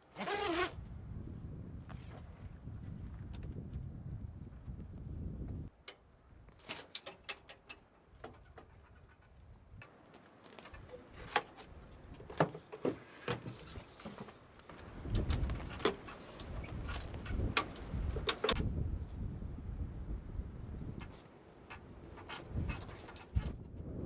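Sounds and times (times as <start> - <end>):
wind buffeting microphone: 0.6 - 5.8, 14.7 - 21.2, 21.8 - 24.0.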